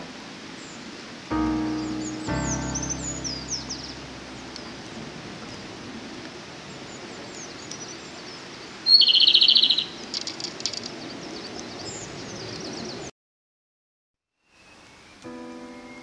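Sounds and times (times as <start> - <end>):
faint high bird chirps: 0.6 - 5.0, 8.8 - 10.0
bird song with rattling trill: 6.9 - 13.1.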